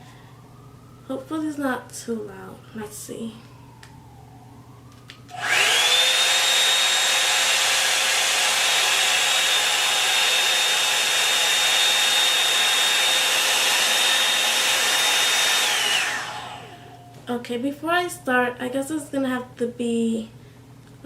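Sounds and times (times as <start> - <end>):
hair dryer brush whining: 5.3 - 17.2.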